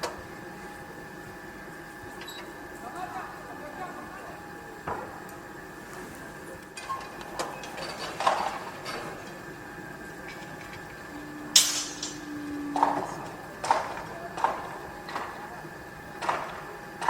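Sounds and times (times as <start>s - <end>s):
machine hum: 0.0s - 17.0s
metallic clanks and knocks: 11.5s - 15.3s.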